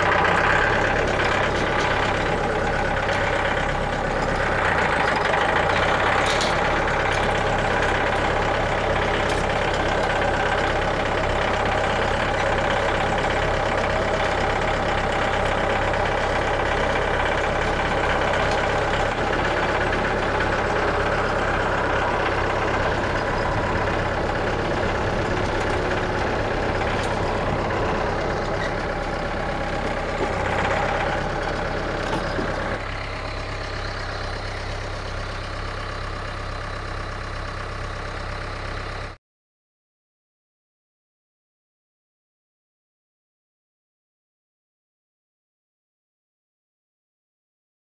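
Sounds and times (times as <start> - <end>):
engine running steadily: 0.0 - 39.2.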